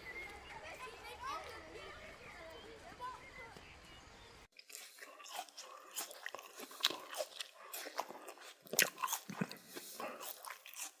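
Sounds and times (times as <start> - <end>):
person biting and chewing: 4.6 - 11.0.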